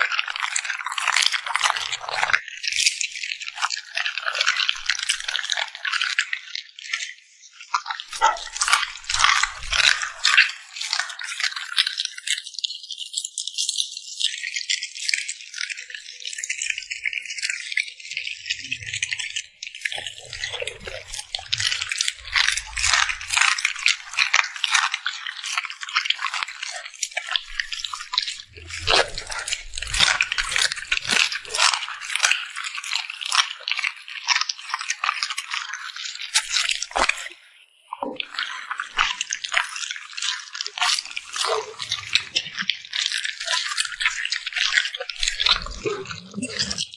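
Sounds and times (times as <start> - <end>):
dog crunching food: 8.1 - 11.4, 19.0 - 37.3, 38.2 - 46.9.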